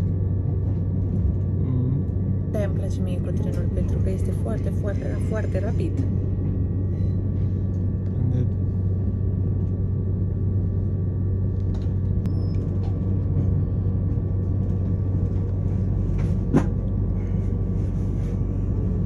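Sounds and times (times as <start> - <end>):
faint steady whine: 0.0 - 19.0
train rumble and hum: 0.0 - 19.0.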